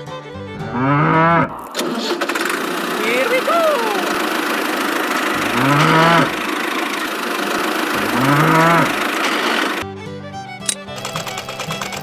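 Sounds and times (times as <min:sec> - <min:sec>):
small engine running: 0:01.2 - 0:12.0
cow mooing: 0:05.3 - 0:06.6, 0:07.9 - 0:09.0.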